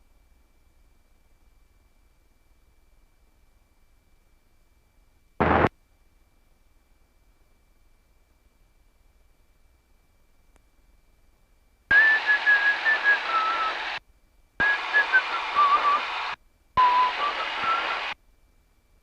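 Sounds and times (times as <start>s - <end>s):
radio static bursts: 5.4s - 5.7s, 11.9s - 14.0s, 14.6s - 18.2s
wavering whistle: 11.9s - 14.0s, 14.6s - 18.2s.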